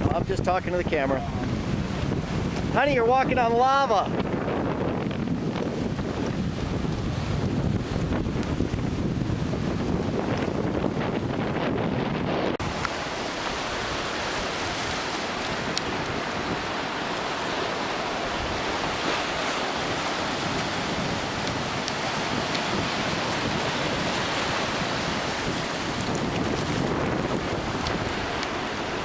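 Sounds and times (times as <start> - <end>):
ocean surf washing: 0.0 - 29.0
wind on microphone: 0.0 - 29.0.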